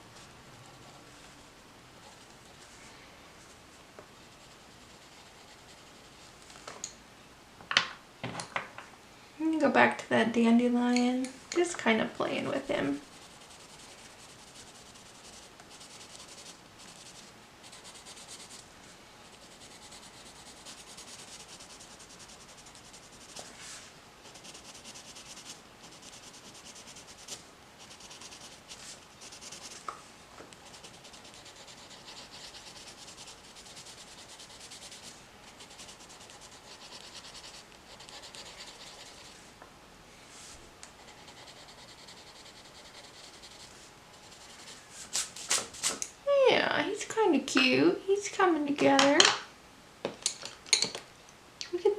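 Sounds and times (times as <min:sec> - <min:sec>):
pencil shading on paper: 0:13.0 - 0:18.6, 0:19.3 - 0:23.4, 0:24.3 - 0:29.8, 0:30.6 - 0:39.3, 0:41.1 - 0:44.6.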